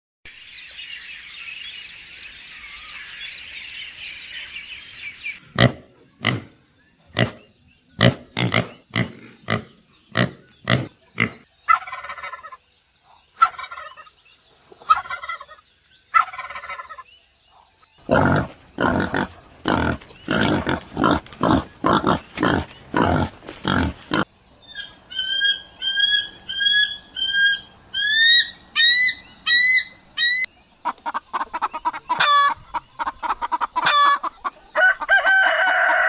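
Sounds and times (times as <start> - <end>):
poultry chattering: 5.3 - 12.6, 18.0 - 36.0
rattling poultry calls: 16.2 - 17.0, 18.0 - 36.0
short sharp poultry calls: 24.8 - 36.0.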